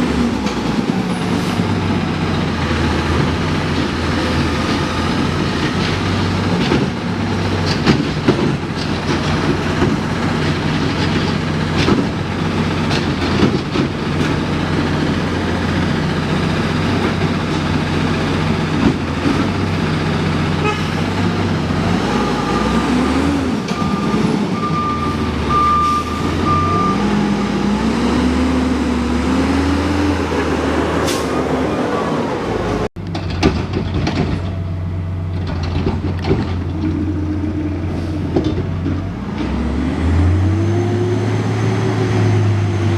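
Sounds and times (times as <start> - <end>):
knocks and clunks: 3.1 - 14.9, 18.7 - 19.7, 33.0 - 34.7, 35.3 - 37.3, 38.2 - 39.6
backup alarm beeping: 23.8 - 27.2.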